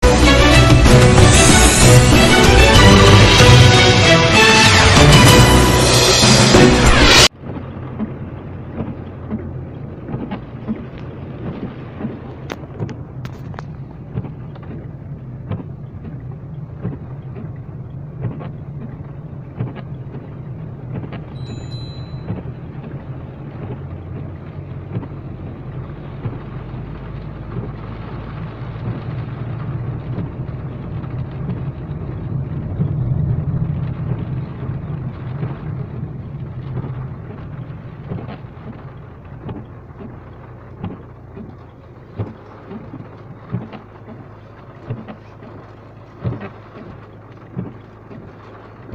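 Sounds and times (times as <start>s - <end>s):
rain falling: 0.0s - 48.9s
thin high tone: 21.4s - 22.4s.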